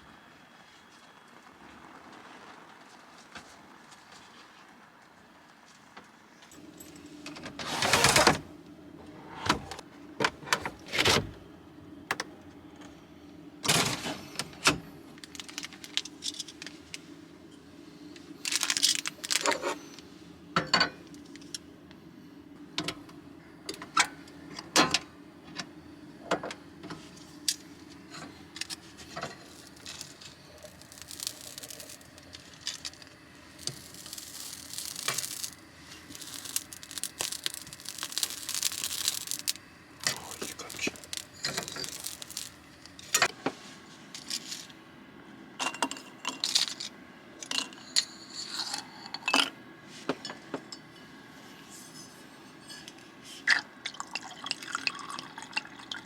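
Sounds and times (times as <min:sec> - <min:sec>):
faint steady hum: 0:03.4 - 0:56.0
small objects clicking and clattering: 0:15.2 - 0:17.0, 0:18.4 - 0:19.6, 0:28.6 - 0:43.2.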